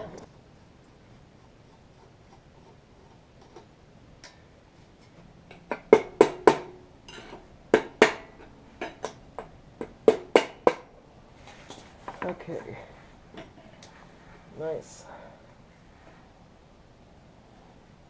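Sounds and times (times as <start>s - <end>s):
metal-on-metal knocks: 5.5s - 10.9s.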